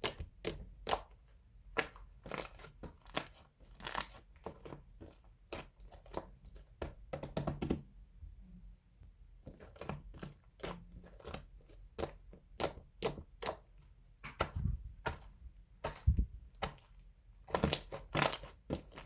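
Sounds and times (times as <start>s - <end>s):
slime squishing with sticky pops: 0.0s - 7.8s, 9.5s - 19.0s.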